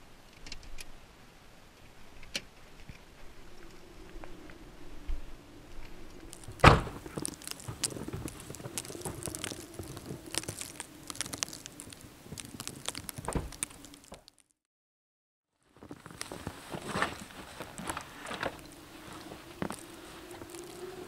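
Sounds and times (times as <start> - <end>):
footsteps in snow: 6.3 - 14.2, 15.7 - 21.0
car door thudding shut: 6.6 - 7.0
soft thump: 6.6 - 7.0.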